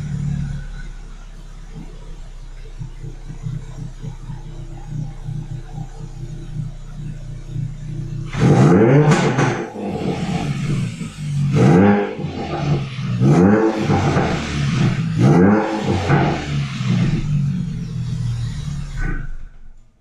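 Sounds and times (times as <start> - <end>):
exhaust burbles and pops: 0.0 - 19.9
car engine revving: 0.0 - 20.0
blow-off valve whoosh: 8.3 - 17.4.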